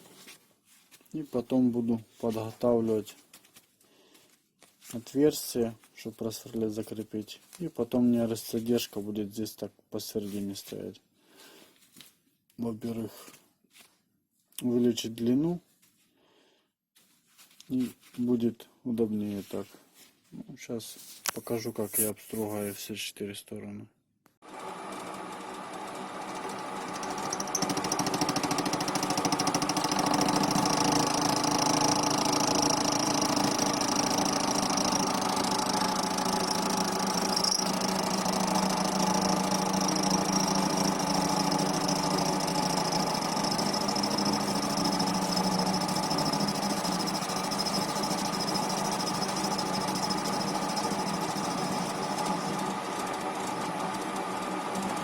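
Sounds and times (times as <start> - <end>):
lathe machine hum: 24.5 - 55.0.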